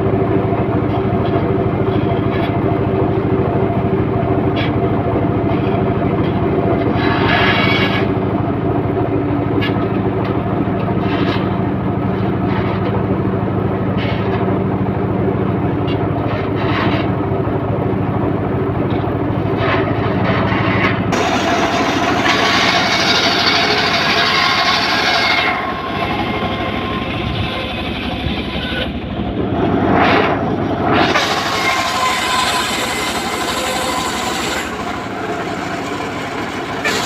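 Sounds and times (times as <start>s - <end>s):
engine-driven saw running: 0.0s - 37.0s
saw blade cutting wood: 6.9s - 8.2s, 19.6s - 29.1s, 29.8s - 37.0s.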